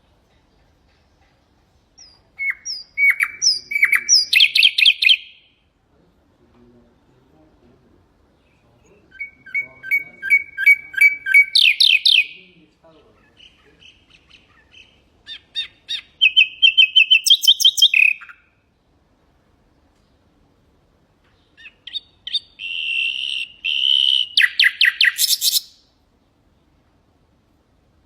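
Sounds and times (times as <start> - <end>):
nightingale singing: 1.8 - 5.7, 8.3 - 18.7, 21.3 - 26.0.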